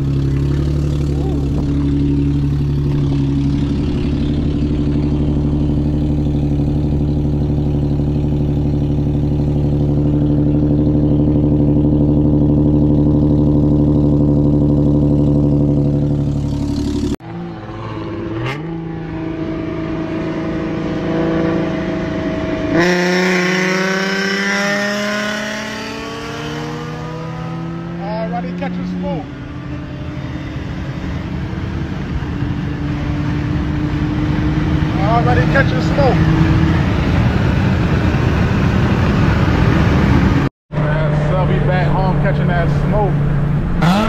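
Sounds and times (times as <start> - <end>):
car engine idling: 0.0 - 17.6
car engine accelerating: 0.0 - 44.0
wind and road noise: 0.0 - 44.0.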